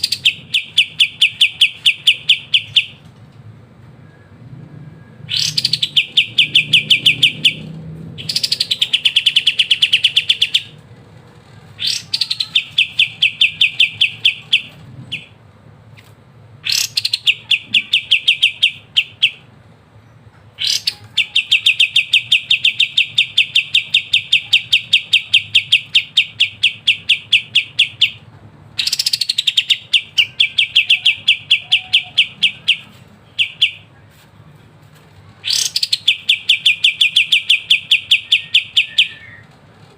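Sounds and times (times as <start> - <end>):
songbird trilling: 0.0 - 3.0, 5.3 - 10.8, 11.8 - 15.4, 16.6 - 19.5, 20.6 - 28.2, 28.8 - 33.9, 35.4 - 39.4.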